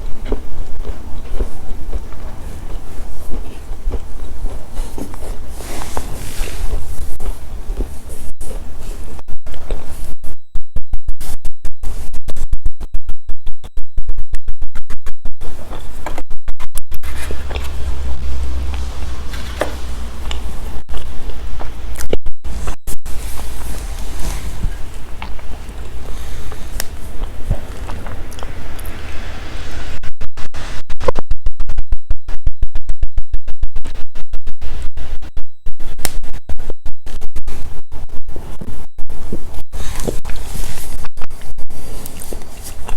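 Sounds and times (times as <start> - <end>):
chewing crunchy snacks: 0.0 - 8.0, 17.0 - 22.2, 23.1 - 29.0, 39.8 - 42.9
low electrical hum: 0.0 - 42.9
microphone crackling: 0.0 - 42.9.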